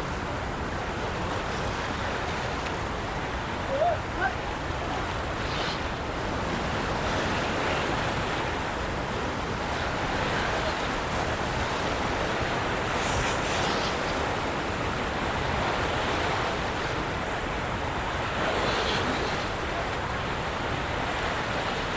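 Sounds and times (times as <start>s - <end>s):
water rushing from spillway: 0.0s - 21.9s.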